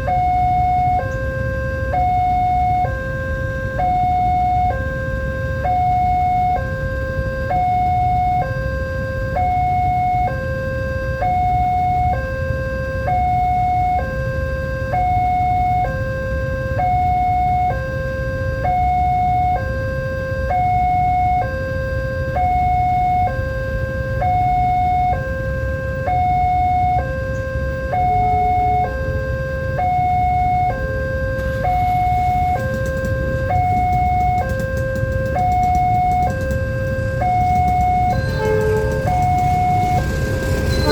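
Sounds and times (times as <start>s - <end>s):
level crossing two-tone alarm: 0.0s - 40.9s
steady low rumble: 29.8s - 40.9s.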